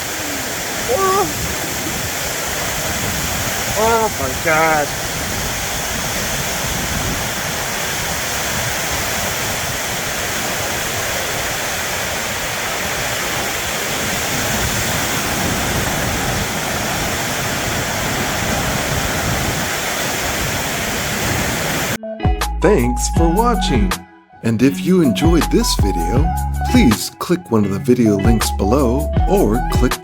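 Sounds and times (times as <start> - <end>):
heavy rain on a metal roof: 0.0 - 22.0.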